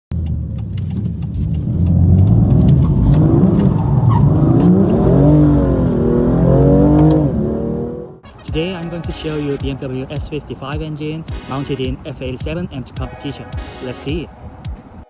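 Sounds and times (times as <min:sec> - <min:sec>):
car engine revving hard: 0:00.2 - 0:08.2
tyre noise: 0:00.2 - 0:13.2.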